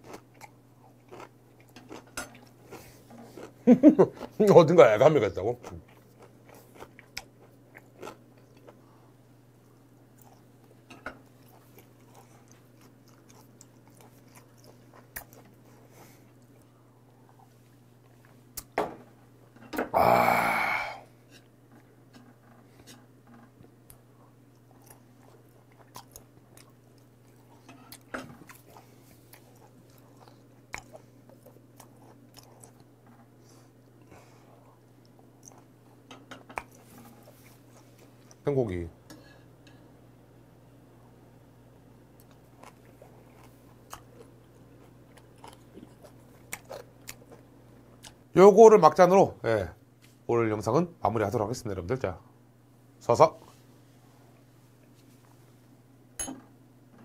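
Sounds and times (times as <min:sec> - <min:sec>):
chewing with wet mouth clicks: 0:00.0 - 0:04.4, 0:05.7 - 0:08.8, 0:11.1 - 0:18.8, 0:23.9 - 0:32.9, 0:34.7 - 0:35.7, 0:36.4 - 0:38.4, 0:42.2 - 0:48.2
steady low hum: 0:00.0 - 0:57.0.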